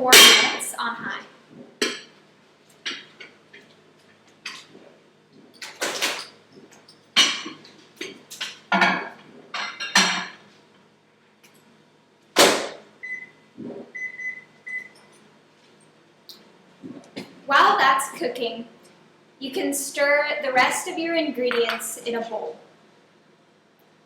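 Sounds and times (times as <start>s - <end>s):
microwave keypad beeps: 13.0s - 15.0s.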